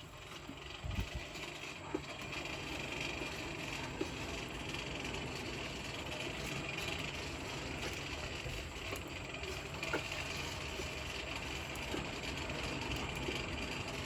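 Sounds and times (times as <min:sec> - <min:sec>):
forge rushing hum: 0:00.0 - 0:14.0.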